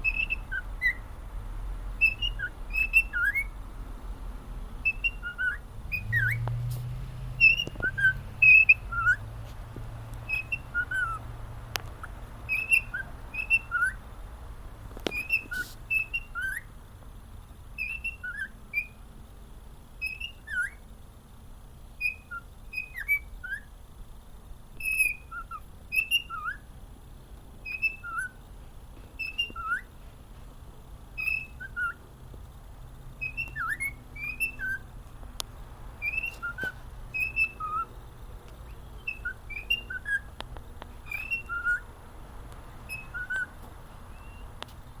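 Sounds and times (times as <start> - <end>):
cockatiel whistling a melody: 0.0 - 1.1, 2.0 - 3.6, 4.8 - 6.4, 7.4 - 9.2, 10.2 - 11.3, 12.0 - 14.0, 15.0 - 16.7, 17.8 - 19.0, 20.0 - 20.8, 22.0 - 23.7, 24.8 - 26.7, 27.6 - 28.4, 29.2 - 29.9, 31.2 - 32.0, 33.2 - 34.9, 36.0 - 37.9, 38.8 - 40.4, 41.0 - 41.9, 42.9 - 44.6.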